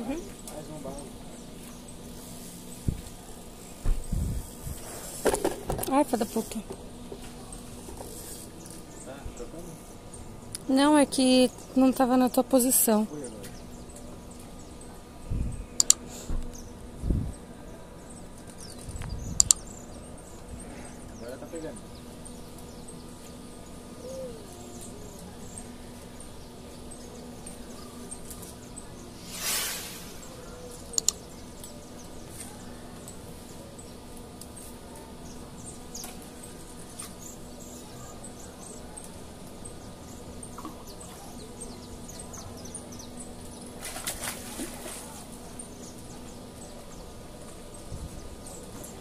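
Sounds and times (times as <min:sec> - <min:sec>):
small birds chirping: 0:00.0 - 0:49.0
steady low hum: 0:00.0 - 0:49.0
brief rushing noise: 0:29.2 - 0:30.6.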